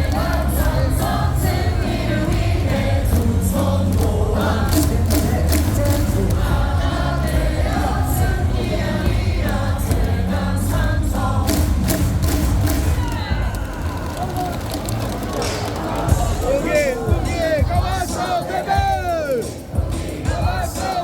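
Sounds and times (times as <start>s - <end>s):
sharp claps: 0.0s - 8.0s, 9.4s - 16.1s
amplified stadium music: 0.0s - 21.0s
crowd singing in unison: 0.0s - 21.0s.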